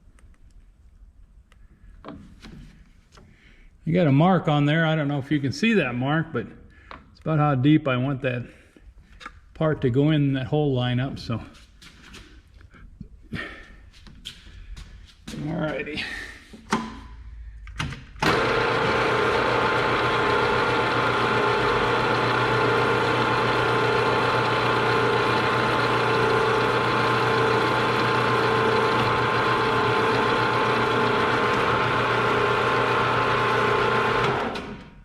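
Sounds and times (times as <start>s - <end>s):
machine tool motor humming: 18.2s - 34.8s.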